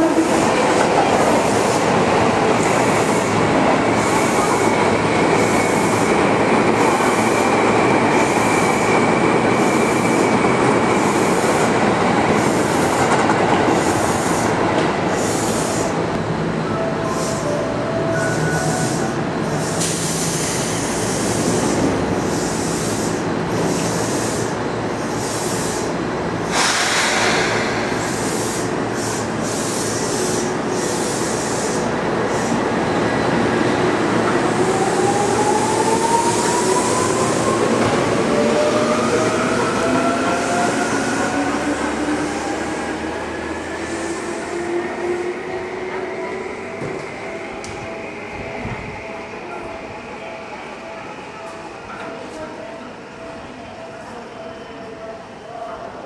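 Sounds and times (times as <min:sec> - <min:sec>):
train doors shutting: 0:00.0 - 0:52.9
electric train pulling away: 0:13.7 - 0:51.4
train wheel squeal: 0:17.0 - 0:25.9.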